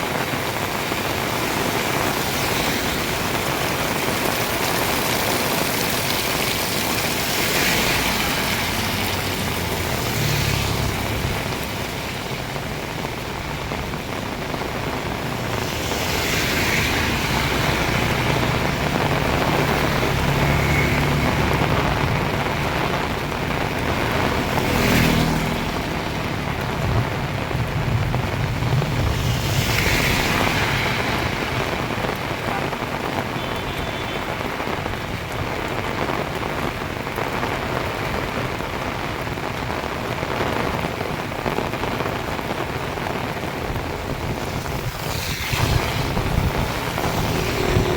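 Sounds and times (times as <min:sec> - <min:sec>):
heavy rain pouring: 0:00.0 - 0:47.9
vehicle engine humming: 0:45.6 - 0:47.9.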